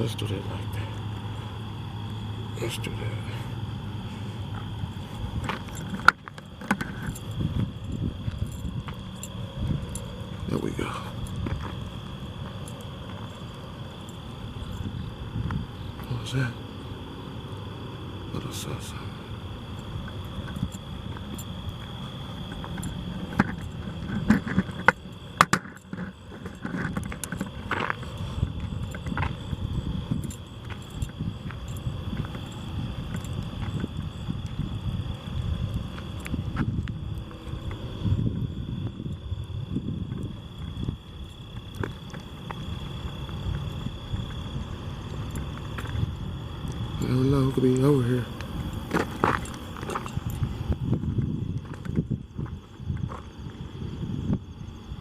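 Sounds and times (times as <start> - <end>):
high-pitched insect drone: 0.0 - 55.0
footsteps crunching on overgrown ground: 48.4 - 50.9.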